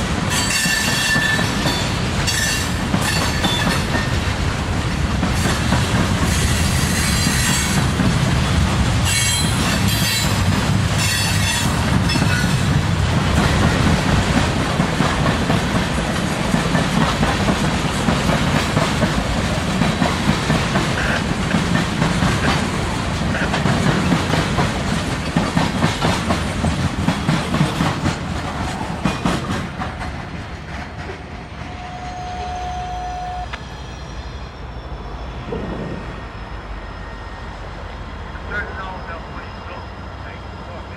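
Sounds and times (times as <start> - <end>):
train wheels clacking over rail joints: 0.0 - 31.7
high wheel squeal: 31.6 - 40.9.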